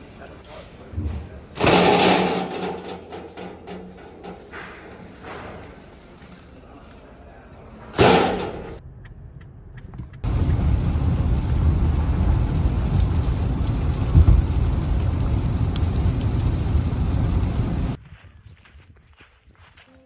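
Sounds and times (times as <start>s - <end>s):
deep rumble of thunder: 10.2s - 18.0s
steady rain: 10.2s - 18.0s.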